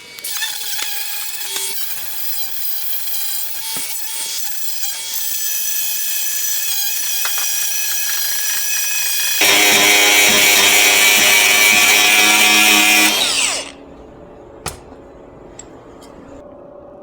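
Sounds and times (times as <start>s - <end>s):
power tool whining and spinning down: 7.0s - 13.8s.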